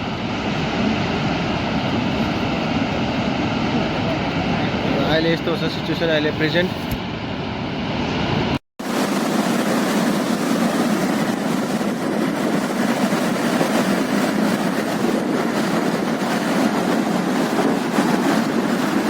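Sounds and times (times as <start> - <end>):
river rushing: 8.8 - 19.0.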